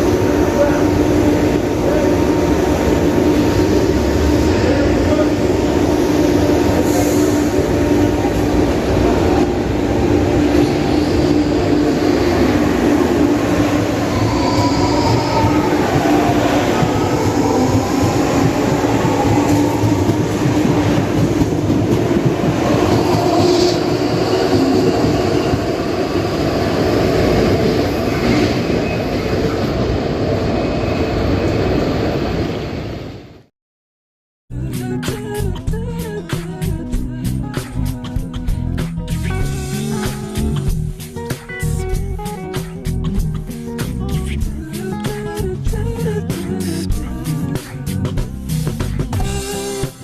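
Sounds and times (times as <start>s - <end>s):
whining tone: 0.0s - 29.6s
train rumbling on rails: 0.0s - 33.4s, 35.2s - 50.0s.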